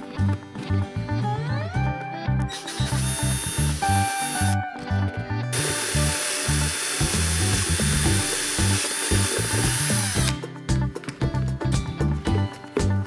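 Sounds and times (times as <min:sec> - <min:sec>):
background music with steady beat: 0:00.0 - 0:13.0
workshop tool hissing: 0:02.6 - 0:04.6, 0:05.6 - 0:10.3.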